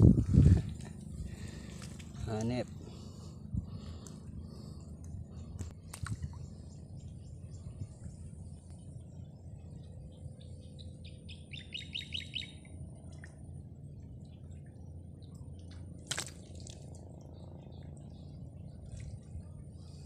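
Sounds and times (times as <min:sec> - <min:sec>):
low outdoor rumble: 0:00.0 - 0:20.0
small bird chirping: 0:10.2 - 0:12.7.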